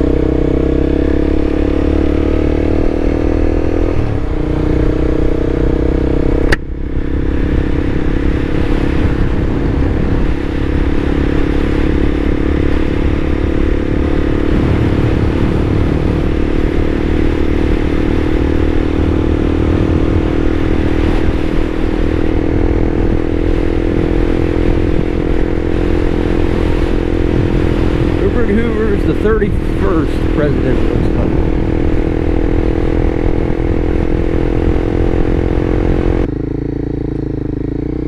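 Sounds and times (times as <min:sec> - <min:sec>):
vehicle engine and road noise: 0:00.0 - 0:38.0.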